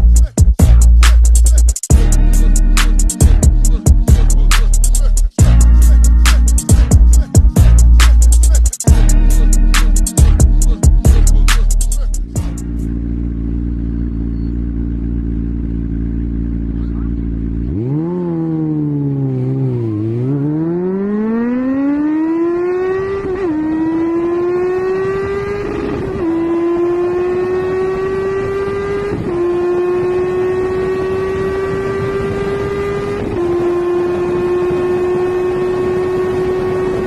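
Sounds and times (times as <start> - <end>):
motorbike engine accelerating: 1.9 - 37.0.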